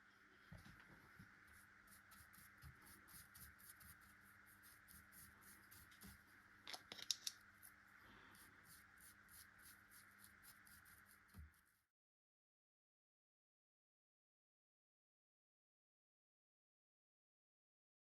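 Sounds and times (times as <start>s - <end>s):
faint steady hum: 0.0s - 11.8s
small clicks: 6.6s - 7.4s.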